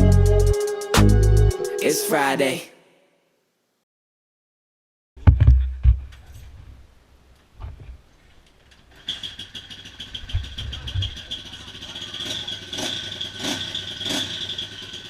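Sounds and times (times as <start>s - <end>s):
heavy thumps and clicks: 5.2s - 6.3s
motorcycle engine running: 9.6s - 15.0s.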